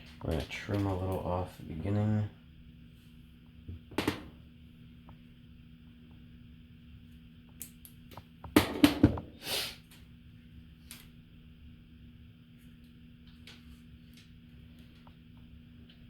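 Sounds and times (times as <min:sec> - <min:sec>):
faint steady hum: 0:00.0 - 0:16.0
short hiss: 0:09.4 - 0:09.8.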